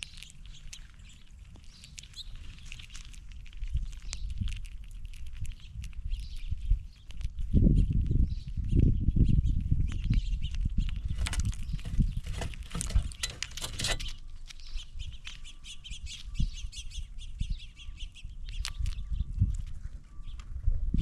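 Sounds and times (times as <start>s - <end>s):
birds chirping and calling: 0.0s - 3.1s, 8.2s - 20.5s
animals thumping on feeding table: 11.1s - 14.1s.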